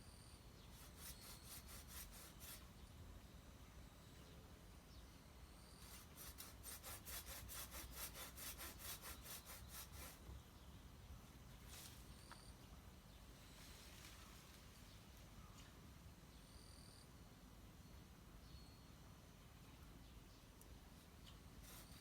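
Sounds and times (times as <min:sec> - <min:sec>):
hand saw cutting wood: 0:00.8 - 0:02.6, 0:05.8 - 0:10.2, 0:21.6 - 0:22.0.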